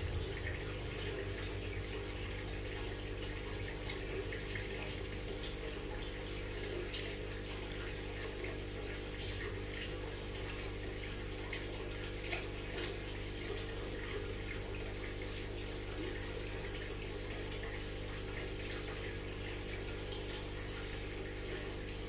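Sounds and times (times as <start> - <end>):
aquarium water trickling and bubbling: 0.0 - 22.0
low pump hum: 0.0 - 22.0
small water splashes: 0.0 - 22.0.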